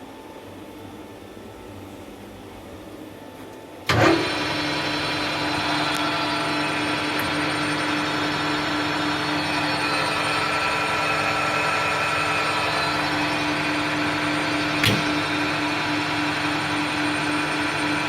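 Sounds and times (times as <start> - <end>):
lathe motor hum with whining tones: 3.8 - 18.0
lathe starting up: 3.9 - 18.0.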